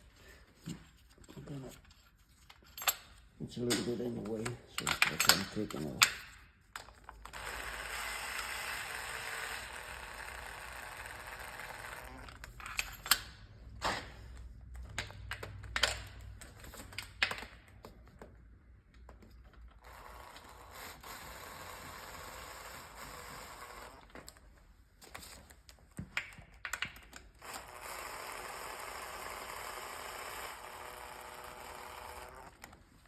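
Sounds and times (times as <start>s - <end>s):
metal clinks of tools: 2.6s - 6.4s, 12.5s - 13.4s.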